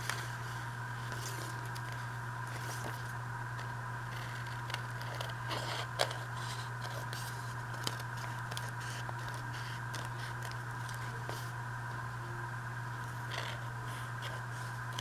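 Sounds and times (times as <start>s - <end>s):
low electrical hum: 0.0s - 15.0s
scissors cutting paper: 2.6s - 11.4s.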